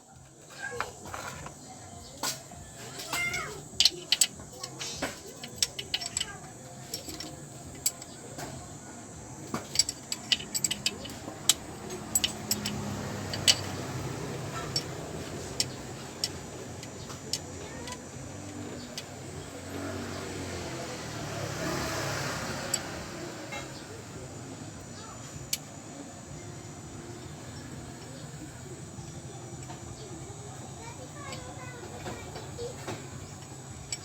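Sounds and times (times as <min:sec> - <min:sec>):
steady low hum: 0:00.0 - 0:21.7
metallic clinks of hand tools: 0:02.2 - 0:08.6, 0:09.4 - 0:19.2.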